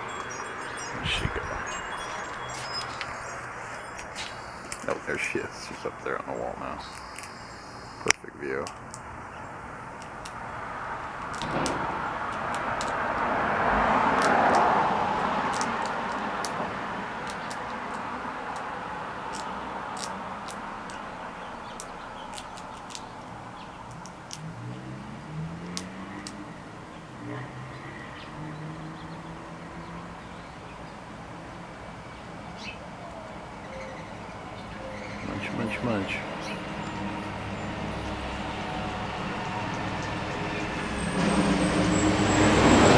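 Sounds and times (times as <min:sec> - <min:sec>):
bird chirps: 0:00.0 - 0:08.2, 0:32.1 - 0:38.2
small birds chirping: 0:00.0 - 0:10.6, 0:17.2 - 0:38.6
car passing: 0:09.6 - 0:42.9.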